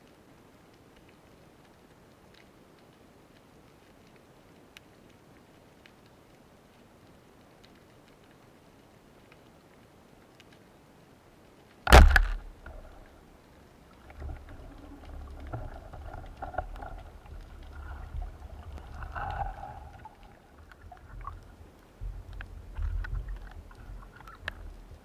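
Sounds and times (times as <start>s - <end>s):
faint clicks and swishes: 11.6s - 25.0s
sharp loud bang: 11.9s - 13.0s
underwater rumbling: 11.9s - 13.2s, 13.9s - 25.0s.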